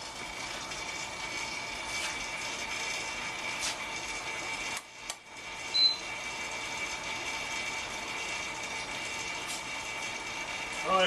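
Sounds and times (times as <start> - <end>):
microwave humming and whining: 0.0 - 11.0
short high beep: 5.7 - 6.0.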